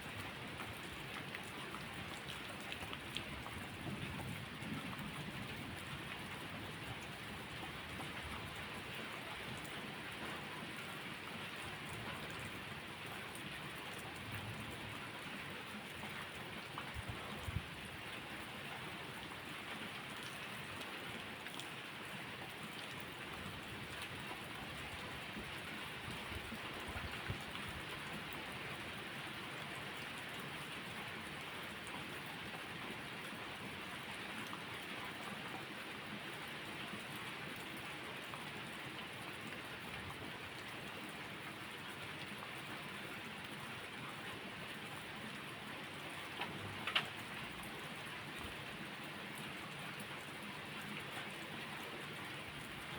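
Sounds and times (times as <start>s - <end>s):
steady rain: 0.0s - 52.9s.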